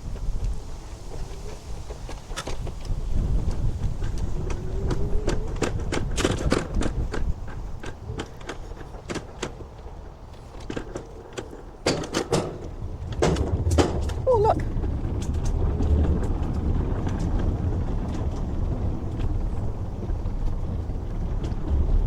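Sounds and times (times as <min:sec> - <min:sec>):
scooter rattling: 0:00.0 - 0:22.0
wind buffeting microphone: 0:00.0 - 0:22.0.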